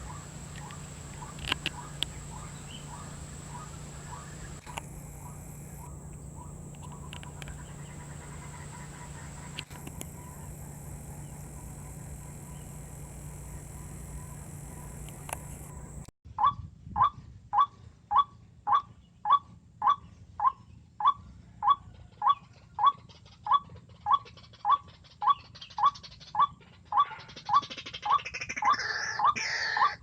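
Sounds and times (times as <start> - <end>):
steady high hiss: 0.0 - 16.1
waterhen calling: 0.0 - 16.1, 28.1 - 30.0.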